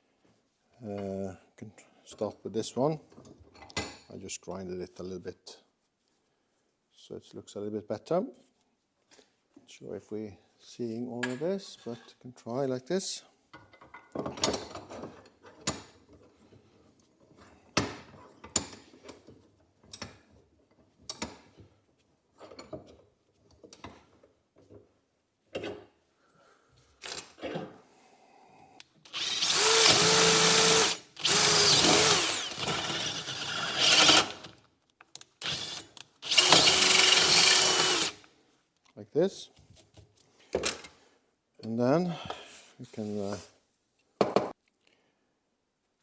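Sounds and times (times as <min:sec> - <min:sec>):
electric drill drilling metal: 0:29.1 - 0:34.5, 0:35.4 - 0:38.2.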